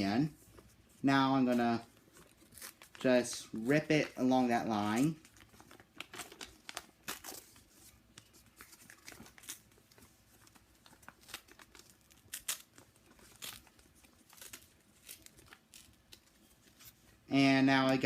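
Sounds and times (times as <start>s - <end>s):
paper tearing: 1.5s - 7.7s, 10.8s - 16.9s.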